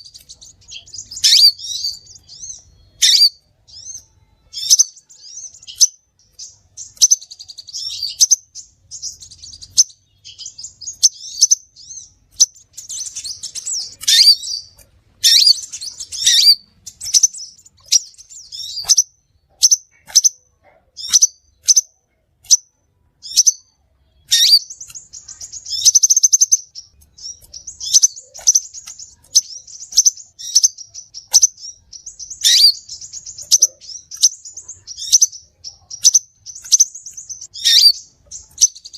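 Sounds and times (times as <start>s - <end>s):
bird chirping and twittering: 0.0s - 38.9s.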